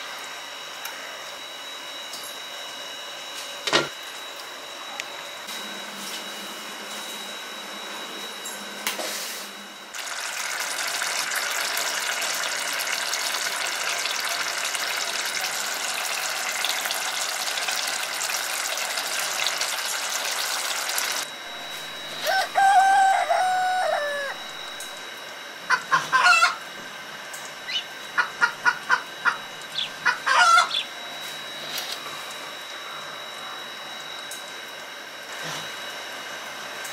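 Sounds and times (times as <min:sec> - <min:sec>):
rooster crowing: 0:22.2 - 0:25.0, 0:26.1 - 0:26.6, 0:30.2 - 0:30.8.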